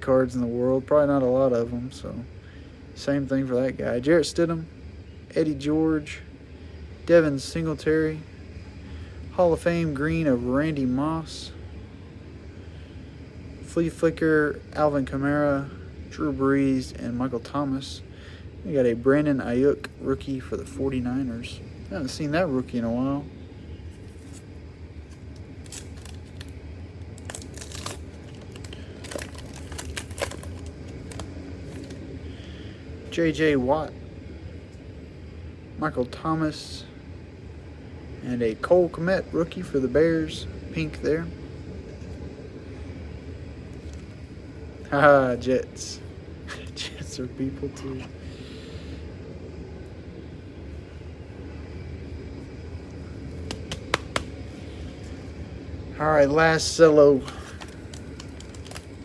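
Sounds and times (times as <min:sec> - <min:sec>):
low background rumble: 0:00.0 - 0:59.0
trading cards rustling: 0:23.9 - 0:24.5, 0:25.1 - 0:32.1, 0:53.3 - 0:55.2, 0:57.1 - 0:59.0
cards clicking together: 0:53.4 - 0:54.3.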